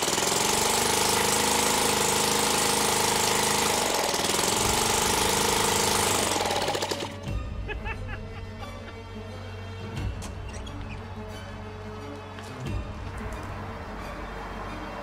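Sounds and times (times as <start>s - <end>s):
small engine running fast: 0.0s - 7.3s
music: 6.0s - 15.0s.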